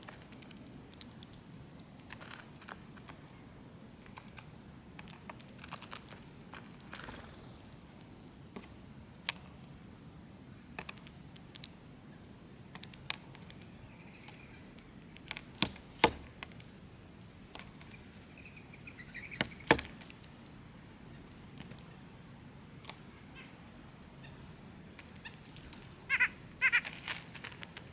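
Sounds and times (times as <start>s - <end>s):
faint twittering bird calls: 13.6s - 14.7s, 17.8s - 20.0s, 22.9s - 27.6s
birds clicking at feeder: 25.0s - 27.9s.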